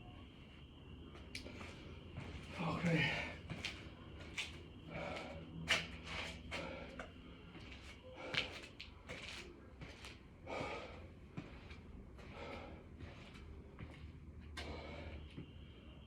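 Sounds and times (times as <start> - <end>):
man breathing hard: 4.8 - 8.8, 10.4 - 14.0, 14.6 - 15.9.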